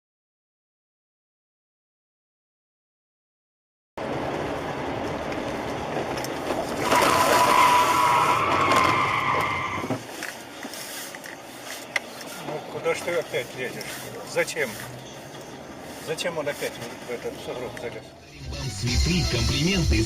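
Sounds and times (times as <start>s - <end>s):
car road and engine noise: 4.0s - 20.0s.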